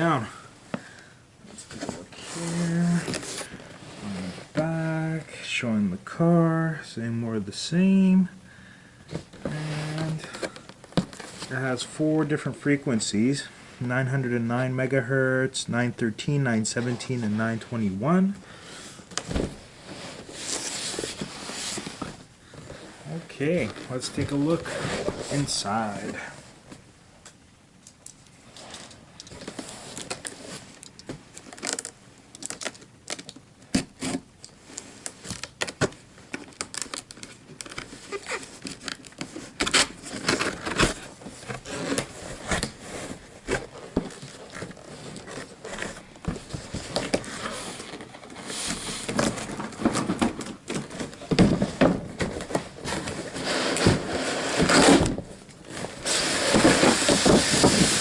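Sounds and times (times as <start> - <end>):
rustling: 18.6 - 26.8, 34.0 - 58.0
cardboard tearing: 36.5 - 58.0
styrofoam scraping and cracking: 52.5 - 58.0.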